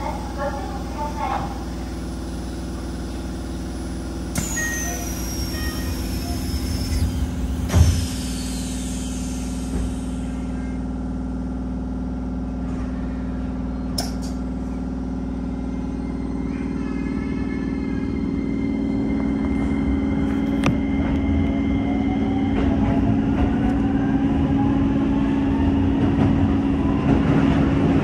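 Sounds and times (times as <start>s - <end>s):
train equipment hum: 0.0s - 28.0s
falling high whistle: 4.4s - 7.2s.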